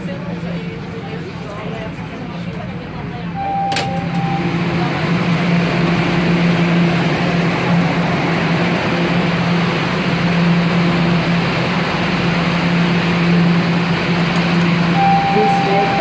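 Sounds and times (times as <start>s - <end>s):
train equipment hum: 0.0s - 16.0s
short higher tone: 3.4s - 4.9s, 15.0s - 16.0s.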